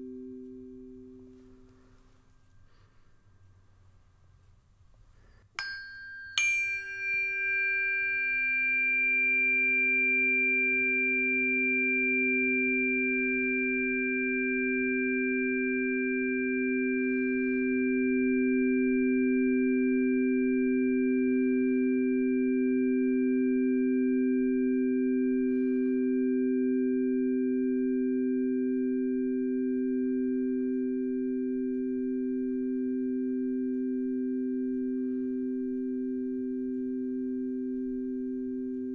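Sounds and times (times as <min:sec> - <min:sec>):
singing bowl ringing: 0:05.6 - 0:28.8.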